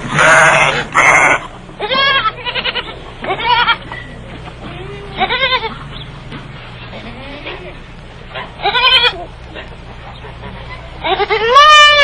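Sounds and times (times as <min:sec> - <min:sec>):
goats bleating: 0:00.0 - 0:04.0, 0:04.6 - 0:05.9, 0:06.9 - 0:07.8, 0:08.6 - 0:09.4, 0:11.0 - 0:12.0.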